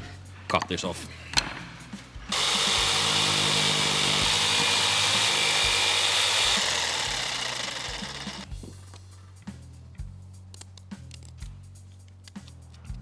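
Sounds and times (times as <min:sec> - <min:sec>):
electric jigsaw cutting wood: 0:02.3 - 0:08.5.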